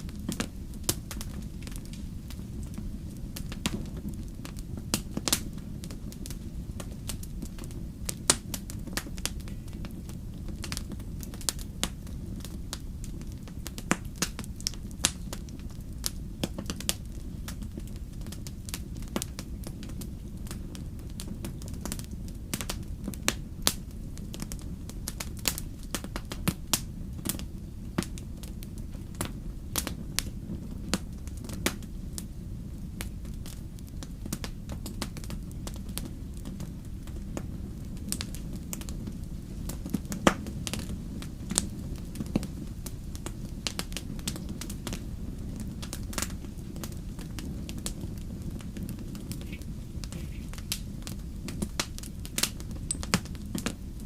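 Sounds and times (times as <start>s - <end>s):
low rumble of flames: 0.0s - 54.0s
wood fire crackling and popping: 0.0s - 54.0s.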